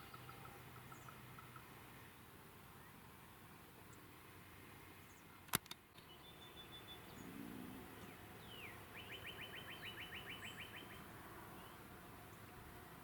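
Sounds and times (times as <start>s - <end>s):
songbirds calling faintly: 0.0s - 13.0s
sharp click: 5.5s - 5.8s.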